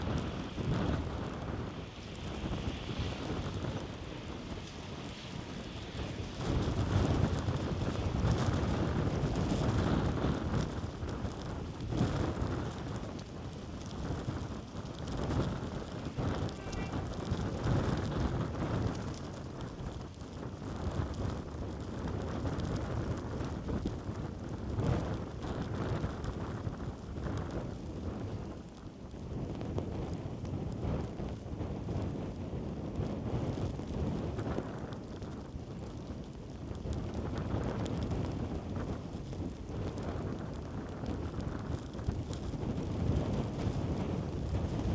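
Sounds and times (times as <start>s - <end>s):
wind buffeting on microphone: 0.0s - 44.9s
blizzard wind gusts: 11.9s - 22.5s.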